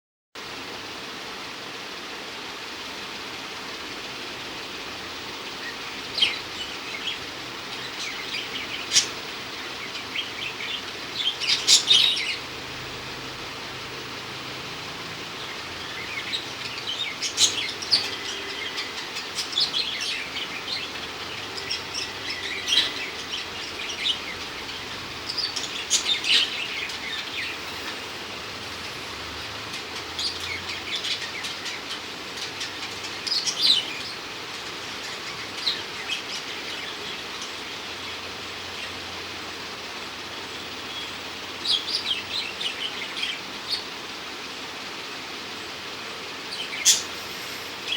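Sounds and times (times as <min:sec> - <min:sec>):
steady hiss: 0:00.4 - 0:47.9
pet bird chirping: 0:46.8 - 0:47.7.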